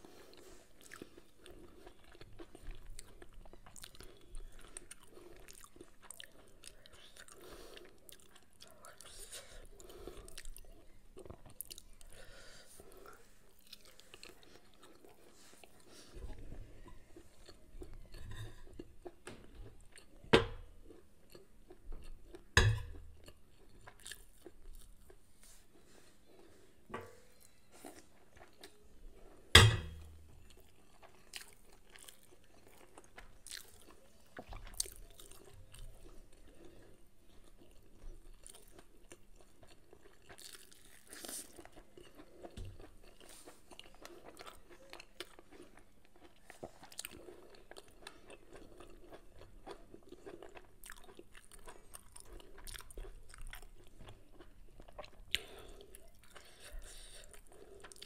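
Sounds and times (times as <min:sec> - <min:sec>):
close-up chewing: 0:00.0 - 0:58.0.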